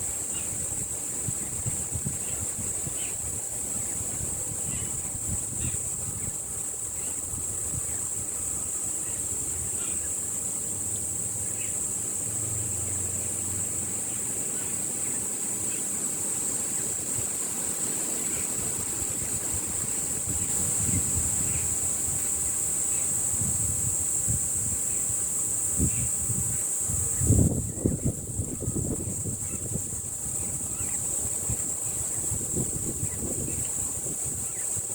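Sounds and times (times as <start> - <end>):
wind buffeting microphone: 0.0 - 9.7, 16.5 - 34.9.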